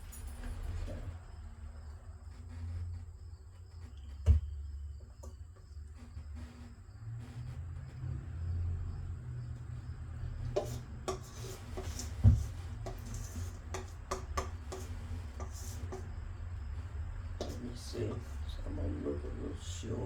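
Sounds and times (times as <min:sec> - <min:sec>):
utensil scraping mixing bowl: 0:09.6 - 0:19.6.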